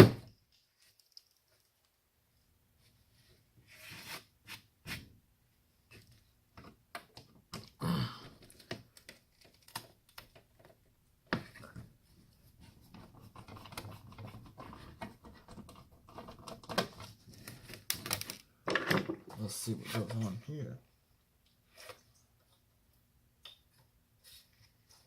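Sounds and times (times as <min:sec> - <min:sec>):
small parts clicking and tapping: 0:00.5 - 0:02.0.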